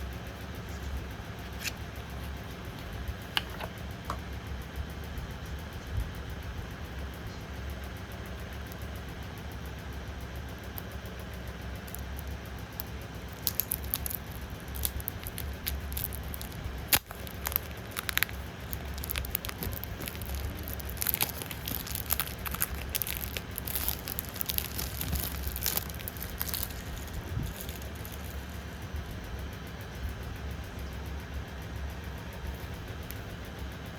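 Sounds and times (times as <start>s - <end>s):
steady low hum: 0.0s - 33.9s
plastic wrap crinkling: 11.8s - 28.8s.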